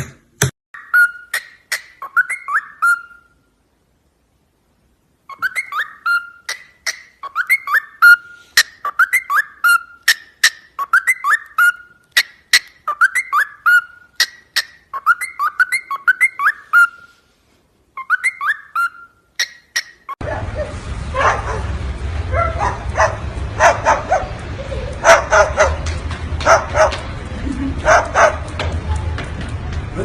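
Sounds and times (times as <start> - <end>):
parrot whistling: 0.8 - 3.4, 5.3 - 17.2, 18.0 - 20.2.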